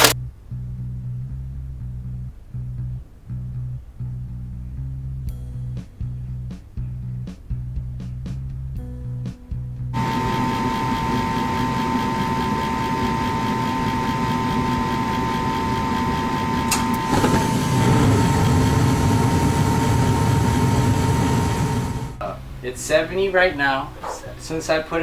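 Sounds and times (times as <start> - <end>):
deep rushing of furnace: 10.0 - 22.7
furnace motor hum: 10.0 - 24.5
steady whine: 10.0 - 24.9.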